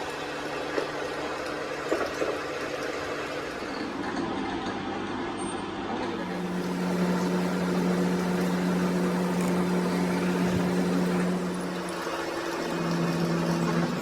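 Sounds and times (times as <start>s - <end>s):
motor-driven machine humming: 6.1s - 14.0s.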